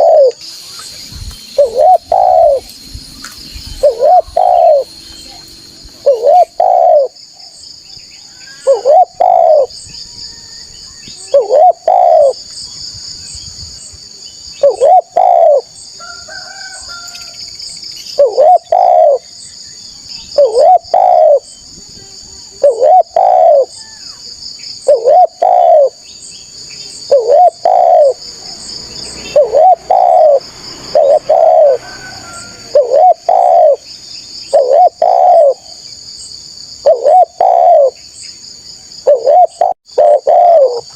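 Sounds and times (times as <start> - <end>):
dove cooing: 0.0 - 0.4, 1.6 - 2.7, 3.7 - 5.0, 6.0 - 7.2, 8.6 - 9.7, 11.2 - 12.4, 14.6 - 15.7, 18.2 - 19.2, 20.4 - 21.5, 22.1 - 23.8, 24.8 - 26.0, 26.9 - 33.9, 34.5 - 35.8, 36.8 - 38.0, 39.0 - 40.9
insects shrilling: 0.0 - 7.2.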